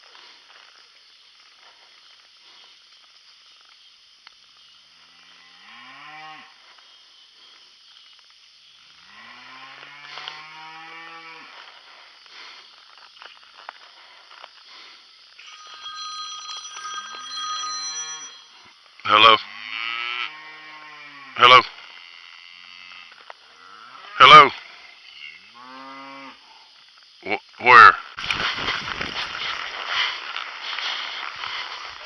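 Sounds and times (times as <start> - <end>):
cattle mooing: 19.4 - 21.7.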